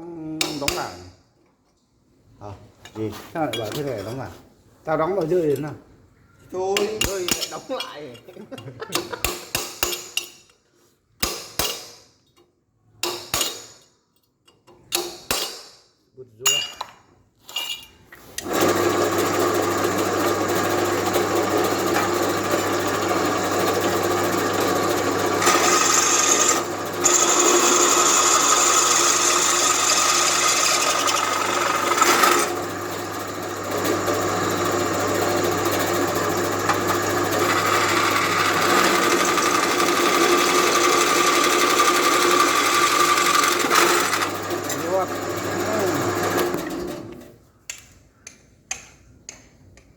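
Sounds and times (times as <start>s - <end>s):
drill press motor hum: 18.4s - 47.2s
drill bit cutting noise: 20.5s - 46.6s.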